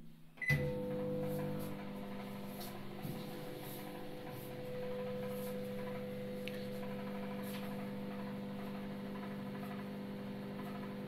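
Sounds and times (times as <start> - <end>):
microwave oven humming: 0.1 - 11.0.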